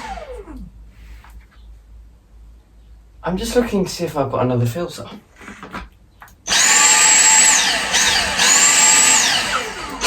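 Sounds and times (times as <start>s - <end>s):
vacuum motor whining: 0.0s - 0.7s, 6.5s - 10.0s.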